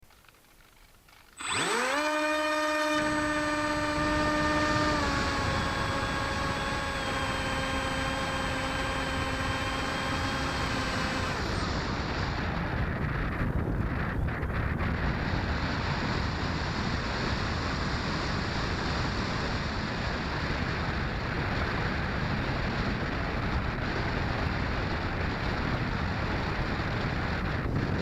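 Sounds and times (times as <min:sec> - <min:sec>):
model plane motor whining: 0:00.1 - 0:14.4
wind on microphone: 0:01.4 - 0:28.0.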